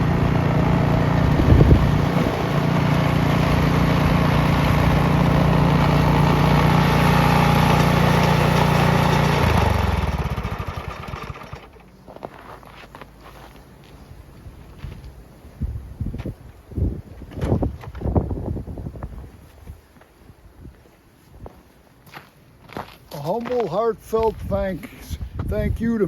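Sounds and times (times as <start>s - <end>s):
engine winding down: 0.0s - 11.9s
small petrol engine running: 0.0s - 12.0s.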